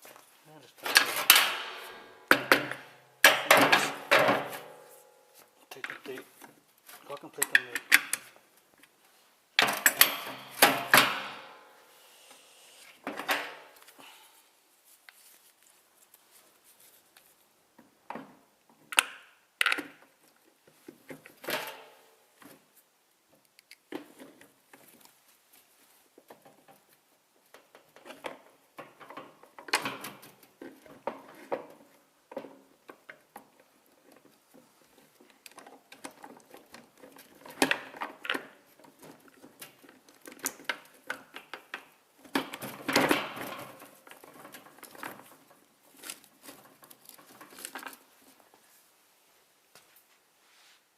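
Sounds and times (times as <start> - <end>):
sharp metal knocks: 1.3 - 4.8.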